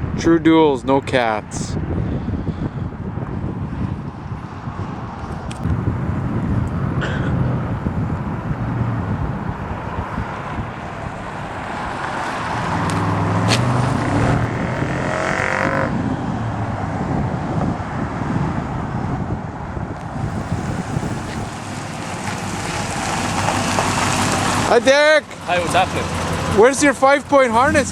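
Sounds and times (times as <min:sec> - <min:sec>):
engine exhaust rumble: 0:05.6 - 0:27.9.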